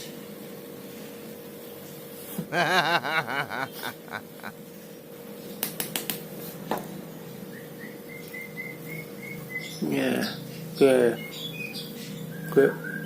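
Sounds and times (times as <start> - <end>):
man giggling: 2.4 - 4.6.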